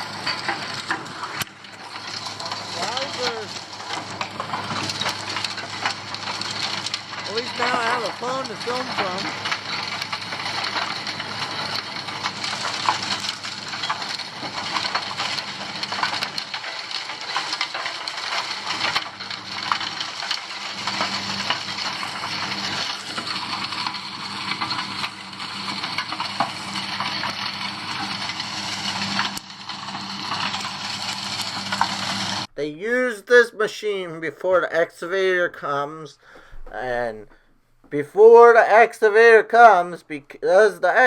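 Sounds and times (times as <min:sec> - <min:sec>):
asphalt crunching and cracking: 0:00.0 - 0:32.6
machine engine hum: 0:00.0 - 0:32.6.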